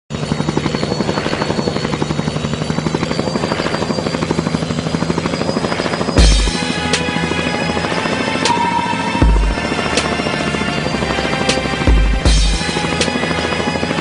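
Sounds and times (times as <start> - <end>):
helicopter rotor chopping: 0.1 - 14.0
music: 4.1 - 14.0.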